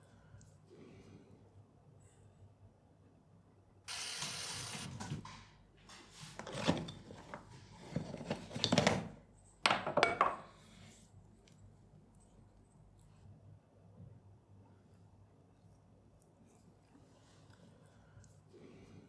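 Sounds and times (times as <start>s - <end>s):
brief hiss: 3.9s - 5.1s
pottery tools rubbing and clattering: 4.0s - 10.6s.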